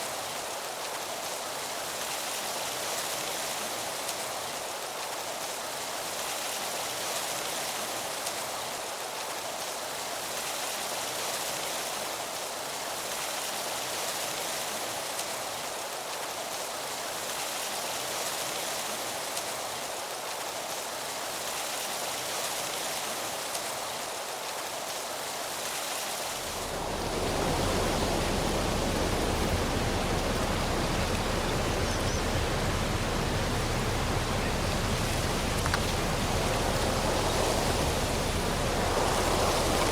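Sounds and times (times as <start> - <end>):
wind rushing through trees: 0.0 - 39.9
low rumble: 26.5 - 39.9.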